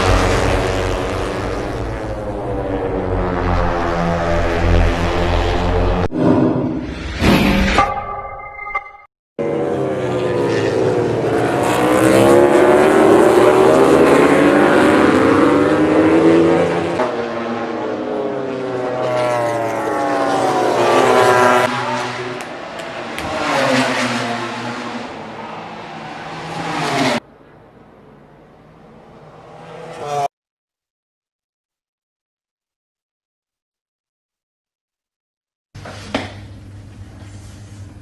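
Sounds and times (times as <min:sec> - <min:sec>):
racing motorcycle engines revving: 0:00.0 - 0:06.1, 0:09.4 - 0:30.3.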